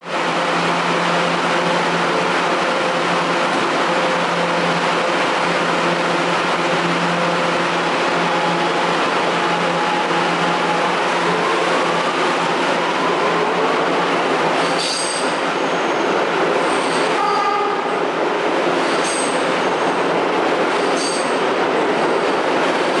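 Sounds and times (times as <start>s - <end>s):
train motor hum and whine: 0.0s - 18.0s
wheels rumbling on rail: 0.0s - 23.0s
high wheel squeals: 14.6s - 17.6s.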